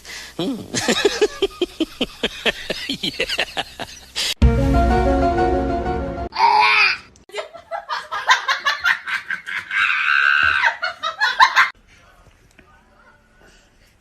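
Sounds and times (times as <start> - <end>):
person laughing hard: 0.5 - 4.2
music: 4.4 - 6.3.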